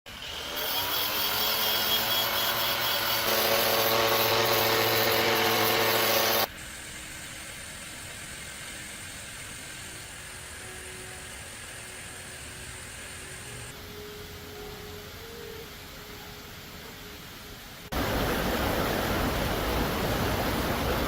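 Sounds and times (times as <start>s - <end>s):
power tool running: 0.1s - 6.9s.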